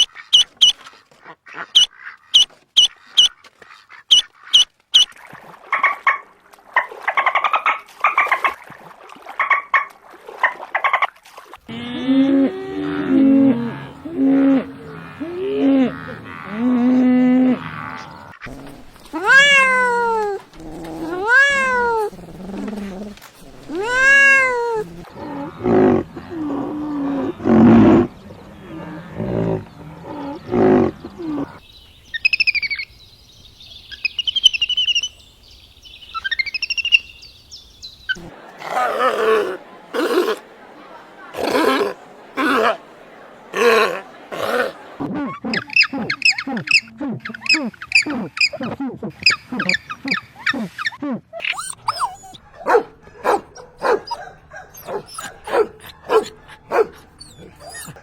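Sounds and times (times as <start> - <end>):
coarse rough animal calls: 11.7 - 31.6, 51.4 - 58.0
short animal calls: 51.4 - 58.0.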